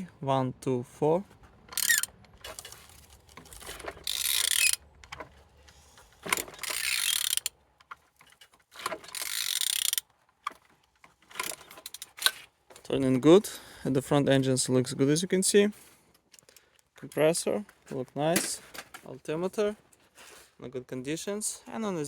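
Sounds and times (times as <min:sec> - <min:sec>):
engine turning over by hand: 0:01.6 - 0:07.6
ratchet wrench clicking: 0:01.7 - 0:02.1, 0:04.0 - 0:04.8, 0:06.3 - 0:07.6, 0:09.1 - 0:10.0.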